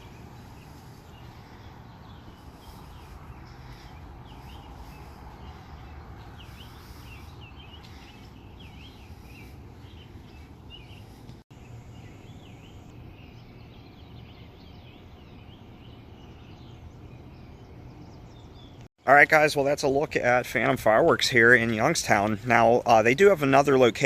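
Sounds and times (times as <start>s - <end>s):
low outdoor rumble: 0.0s - 18.8s
small birds chirping: 0.0s - 24.0s.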